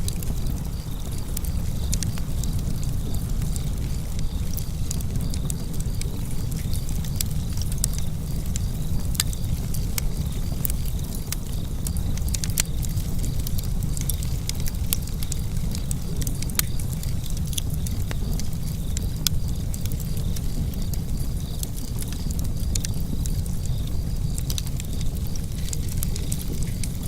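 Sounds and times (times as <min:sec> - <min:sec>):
low rumble of burning: 0:00.0 - 0:27.0
wood fire crackling and popping: 0:00.0 - 0:27.0.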